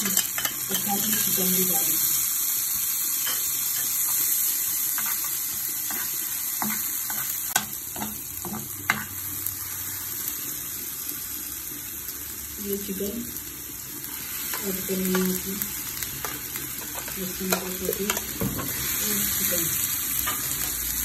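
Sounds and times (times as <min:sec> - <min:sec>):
metal spoon scraping a pan: 0:00.0 - 0:01.6, 0:03.2 - 0:09.2
onions sizzling in hot oil: 0:00.0 - 0:21.0.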